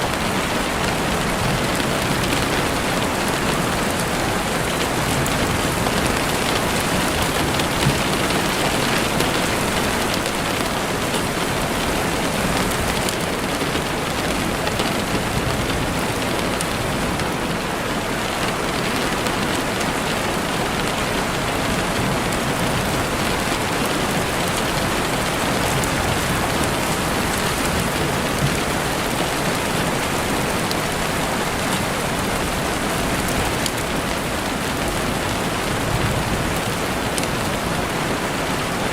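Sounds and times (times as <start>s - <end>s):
heavy rain on window: 0.0s - 38.9s.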